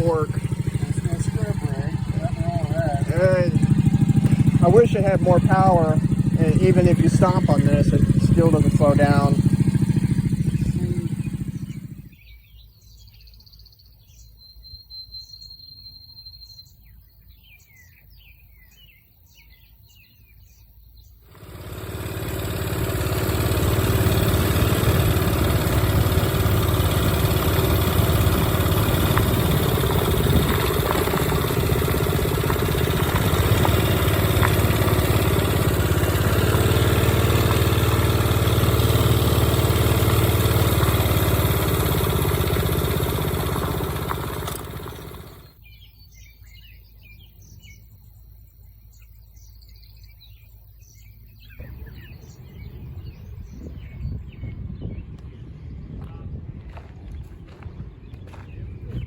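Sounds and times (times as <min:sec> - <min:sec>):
minibike engine running: 0:00.0 - 0:12.2, 0:21.3 - 0:45.6, 0:51.6 - 0:54.4
birds chirping: 0:00.0 - 0:59.0.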